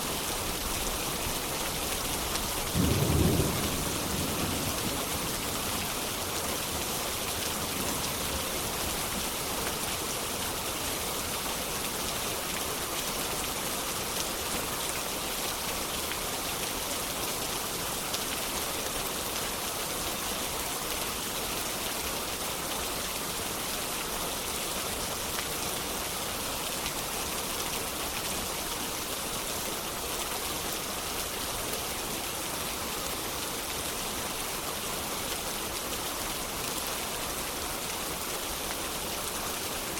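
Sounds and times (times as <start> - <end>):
steady rain falling: 0.0 - 39.9
low thunder rumble: 2.8 - 5.7.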